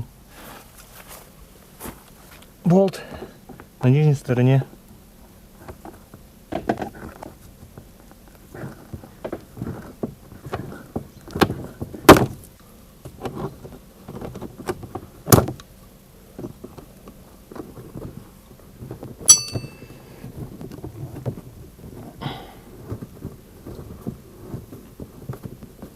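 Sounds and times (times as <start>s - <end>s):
hand tools clicking and knocking: 19.3s - 20.0s
metallic clink: 19.3s - 20.0s.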